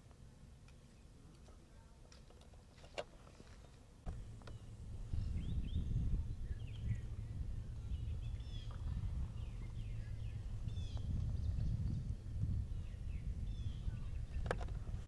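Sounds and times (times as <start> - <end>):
small birds chirping: 4.1 - 15.0
steady low rumble: 4.1 - 15.0.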